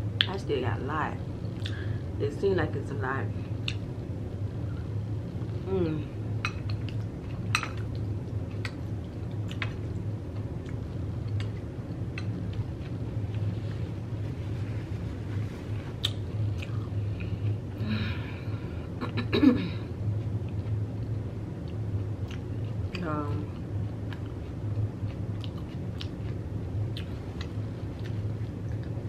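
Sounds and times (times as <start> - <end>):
steady low hum: 0.0 - 29.0
wet mouth clicks: 16.0 - 16.8.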